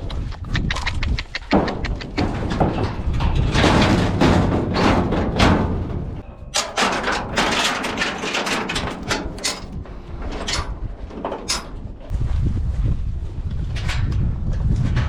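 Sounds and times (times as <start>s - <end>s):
sharp knocks and clatter: 1.3s - 12.1s.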